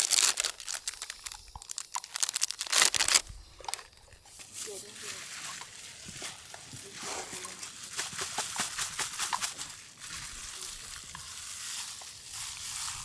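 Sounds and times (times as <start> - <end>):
heating pack hissing and crackling: 0.0 - 5.0.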